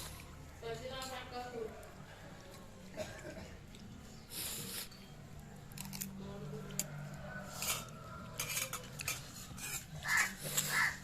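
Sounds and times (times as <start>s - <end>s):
metal spoon scraping a pan: 7.4s - 11.0s.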